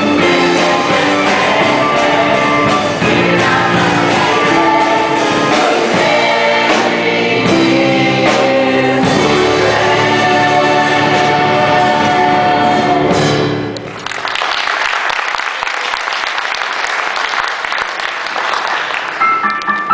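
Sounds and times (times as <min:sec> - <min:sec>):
cast singing with rock band: 0:00.0 - 0:13.3
audience applause: 0:13.8 - 0:19.9.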